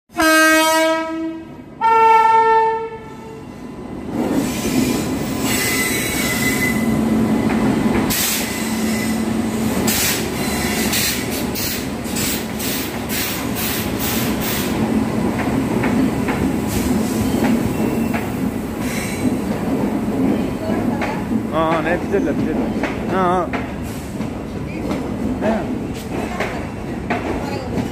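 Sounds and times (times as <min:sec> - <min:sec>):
train horn: 0:00.1 - 0:03.4
train rumbling past: 0:00.1 - 0:27.9.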